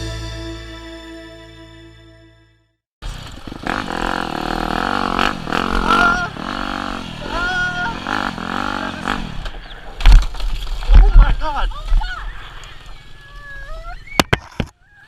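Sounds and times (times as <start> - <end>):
dirt bike engine revving: 3.0 - 9.7.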